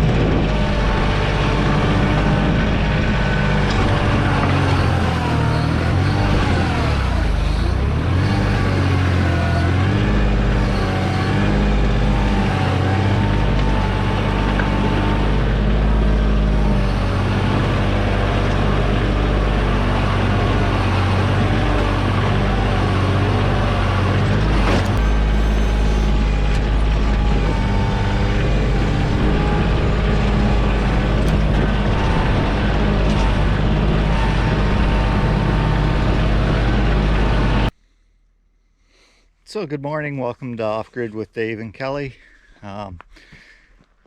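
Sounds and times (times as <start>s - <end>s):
tractor diesel engine running: 0.0s - 38.7s.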